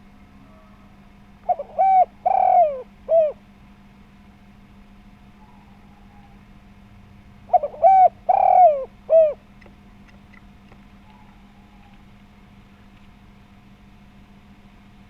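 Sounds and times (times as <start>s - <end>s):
dove cooing: 0.0s - 3.5s, 7.4s - 9.5s.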